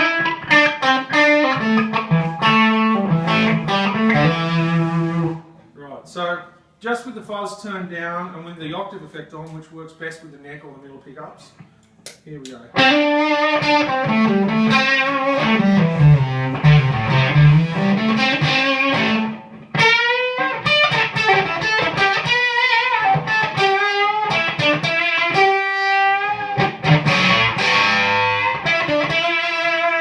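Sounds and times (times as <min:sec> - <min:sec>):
electric guitar with octave fuzz: 0:00.0 - 0:05.6, 0:12.7 - 0:30.0.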